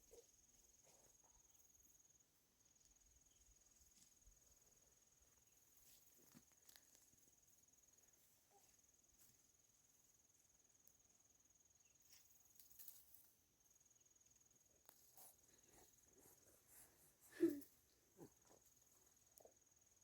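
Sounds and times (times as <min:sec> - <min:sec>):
soft rustles and clicks: 0:03.6 - 0:09.6.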